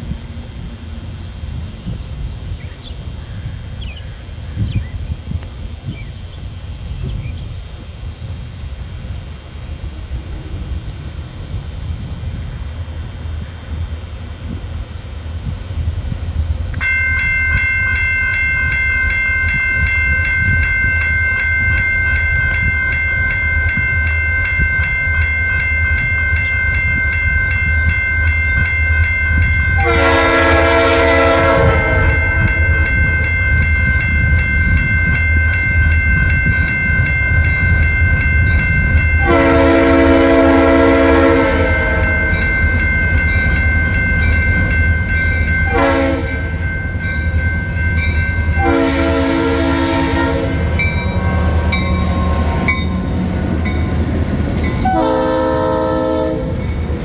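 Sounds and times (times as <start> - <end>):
diesel locomotive rumble: 0.0 - 57.0
crossing bell ringing: 16.8 - 57.0
locomotive air horn blasts: 29.8 - 32.9, 39.2 - 42.4, 45.7 - 46.5, 48.6 - 52.8, 54.8 - 56.6.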